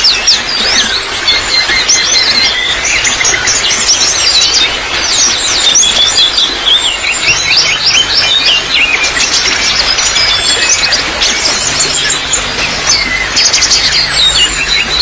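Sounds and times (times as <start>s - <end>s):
small birds chirping: 0.0s - 15.0s
water trickling: 0.0s - 15.0s.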